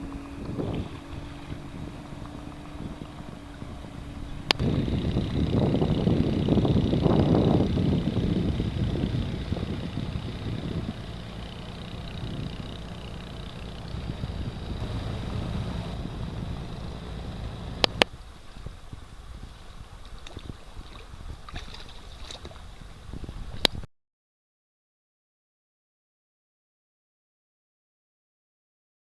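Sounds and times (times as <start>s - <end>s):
water lapping and gurgling: 0.0s - 23.6s
wind rumbling on microphone: 0.0s - 23.9s
sharp clicks: 17.8s - 18.1s.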